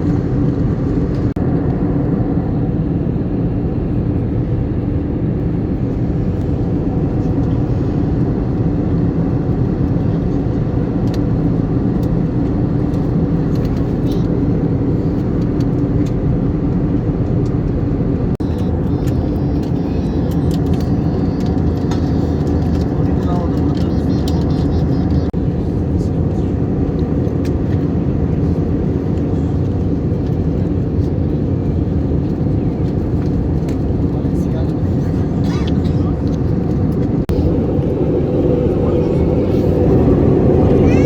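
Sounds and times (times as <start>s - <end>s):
airliner cabin engine drone: 0.0s - 41.0s
low hum: 36.2s - 41.0s.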